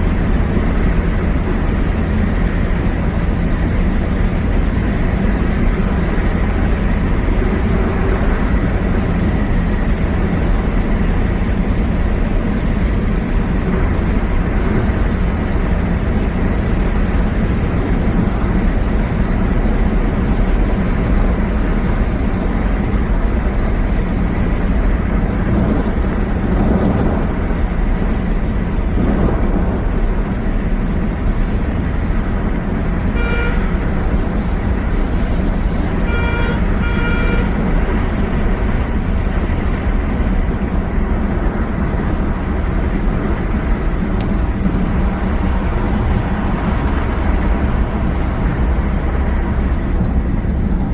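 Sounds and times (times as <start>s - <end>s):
vehicle road noise in tunnel: 0.0s - 50.9s
short horn toot: 33.1s - 33.8s, 36.0s - 37.6s.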